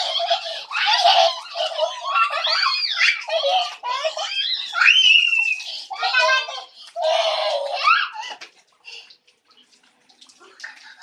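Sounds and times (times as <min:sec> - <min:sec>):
young children laughing and squealing: 0:00.0 - 0:08.4.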